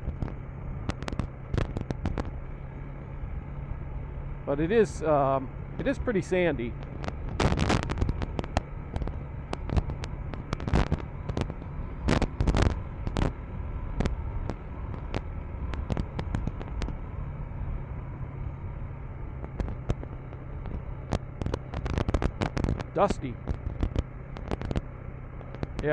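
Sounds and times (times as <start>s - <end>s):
sharp clicks and knocks: 0.0s - 2.4s, 6.7s - 17.1s, 19.4s - 25.9s
motorcycle engine running: 0.0s - 25.9s.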